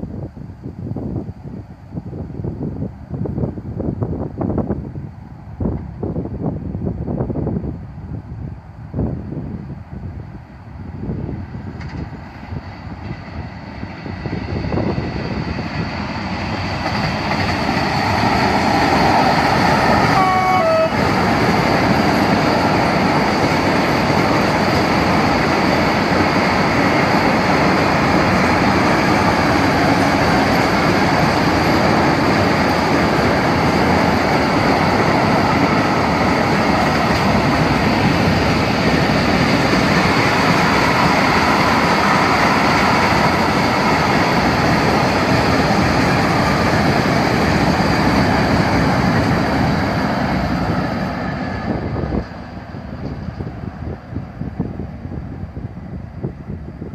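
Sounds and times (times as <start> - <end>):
train wheels rumbling on rails: 0.0 - 56.9
train horn blast: 19.8 - 21.2.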